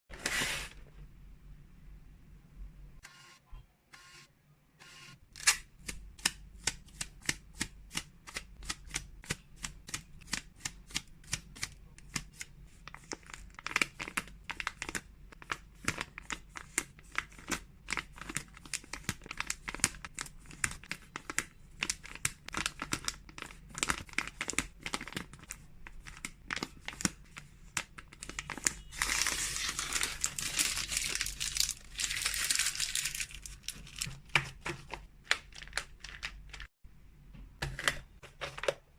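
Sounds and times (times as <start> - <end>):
plastic packaging crinkling: 12.9 - 36.7.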